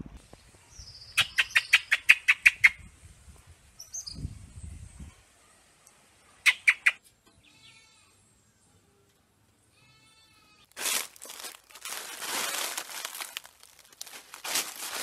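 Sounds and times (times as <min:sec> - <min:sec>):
bird calling sharp notes: 0:00.9 - 0:02.8, 0:06.4 - 0:07.0.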